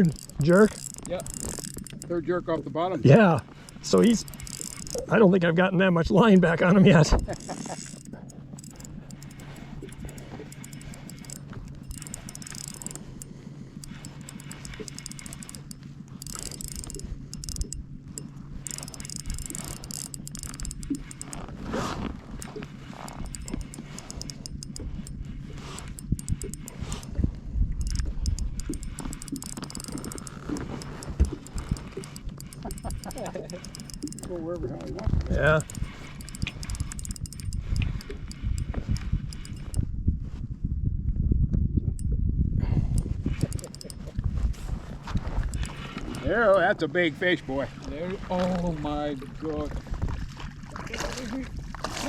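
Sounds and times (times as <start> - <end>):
fishing reel clicking and whirring: 0.0 - 39.9, 42.8 - 49.7
steady low hum: 0.0 - 52.0.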